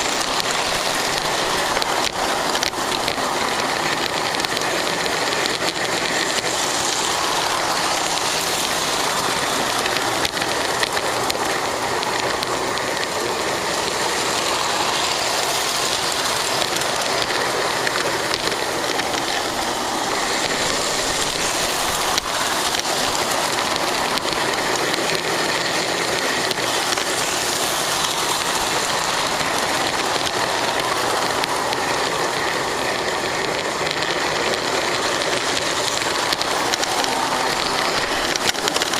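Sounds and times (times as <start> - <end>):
model train motor and wheels: 0.0 - 38.9.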